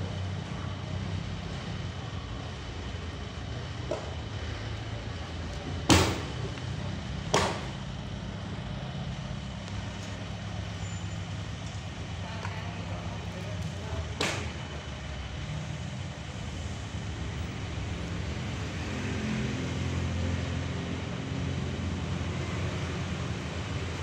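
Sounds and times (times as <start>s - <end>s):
loud knocks: 5.9s - 6.5s, 7.3s - 7.8s.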